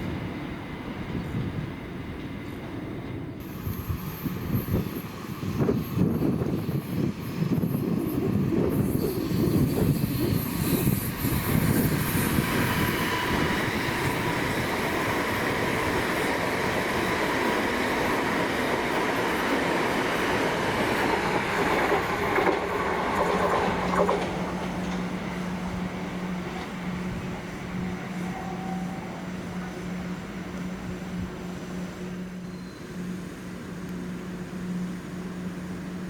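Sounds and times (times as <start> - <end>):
train wheel and rail rumble: 0.0 - 36.0
high squeal: 32.2 - 33.1.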